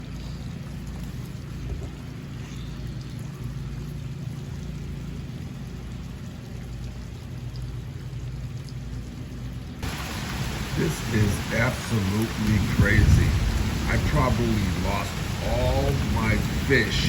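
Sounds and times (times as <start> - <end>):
heavy rain: 9.8 - 17.0.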